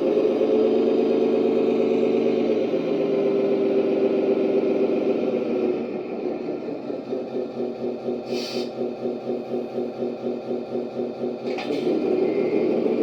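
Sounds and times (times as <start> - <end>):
engine sound through small speaker: 0.0 - 13.0.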